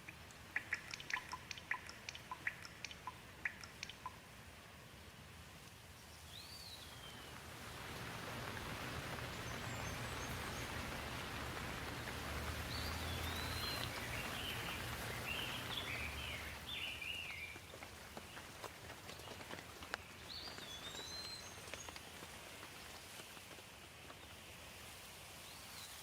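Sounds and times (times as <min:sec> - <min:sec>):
small birds chirping: 0:00.0 - 0:04.3, 0:06.0 - 0:24.6
steady rain: 0:00.0 - 0:26.0.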